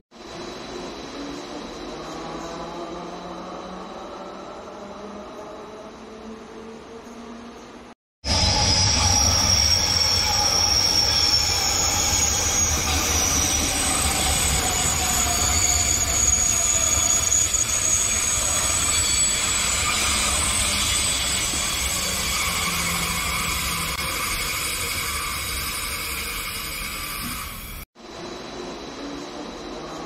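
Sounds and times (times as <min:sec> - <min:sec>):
low train rumble: 0:00.2 - 0:30.0
train wheels squealing: 0:08.3 - 0:27.8.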